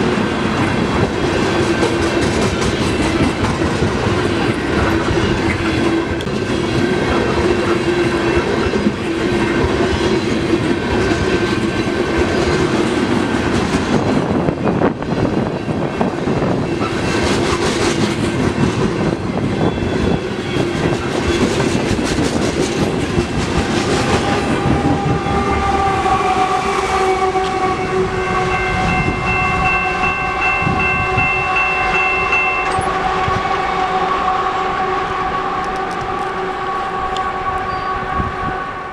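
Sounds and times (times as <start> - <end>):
freight train rumbling over rails: 0.0 - 38.9
train horn chord: 23.6 - 38.9.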